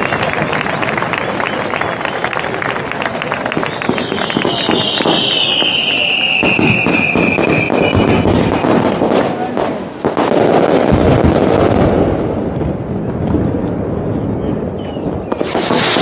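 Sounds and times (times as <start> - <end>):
falling firework whistle: 0.0 - 9.5, 14.3 - 16.0
fireworks bursts and crackling: 0.0 - 16.0.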